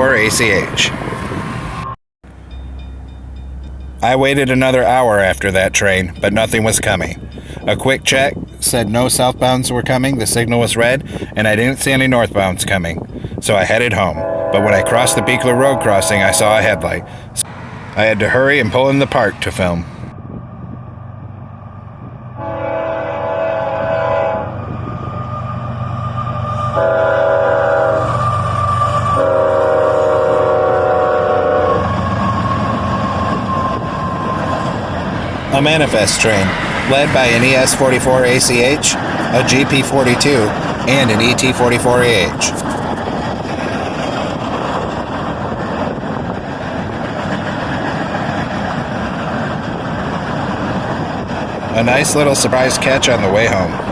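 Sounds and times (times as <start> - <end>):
freight train rolling past: 0.0 - 53.9
locomotive engine rumble: 0.0 - 53.9
locomotive air horn blasts: 14.2 - 17.3, 22.4 - 24.6, 26.7 - 28.4, 29.0 - 31.9.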